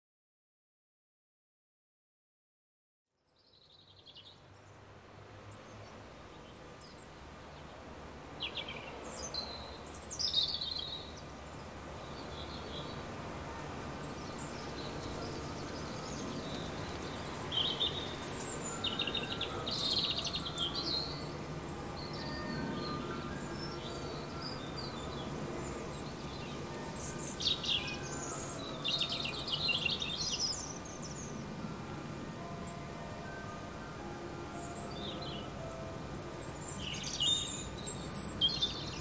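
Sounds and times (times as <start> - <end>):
outdoor background noise: 3.2 - 39.0
small birds chirping: 8.0 - 31.5.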